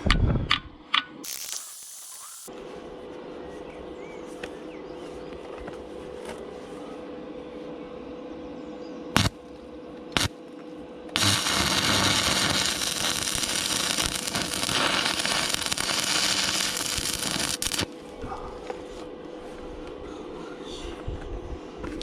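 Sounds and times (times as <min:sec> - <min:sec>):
electric arc welding crackle: 0:01.2 - 0:02.5, 0:09.2 - 0:09.4, 0:11.2 - 0:18.0.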